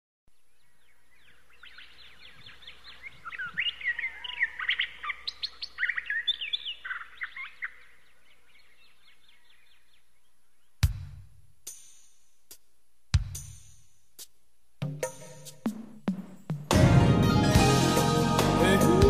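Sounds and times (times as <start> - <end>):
small birds chirping: 0.3 - 10.9.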